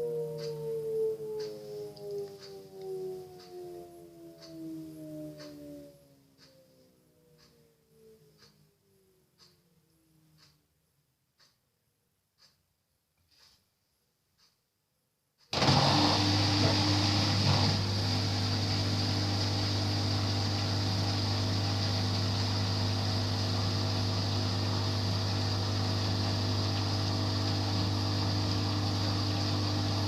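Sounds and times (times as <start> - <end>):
washing machine humming: 15.5 - 30.0.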